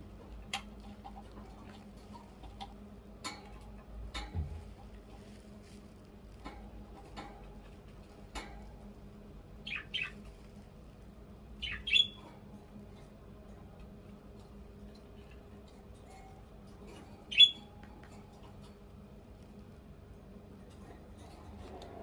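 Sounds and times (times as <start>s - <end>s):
budgerigar chirping and squawking: 9.6s - 10.2s, 11.6s - 12.2s, 17.3s - 17.7s.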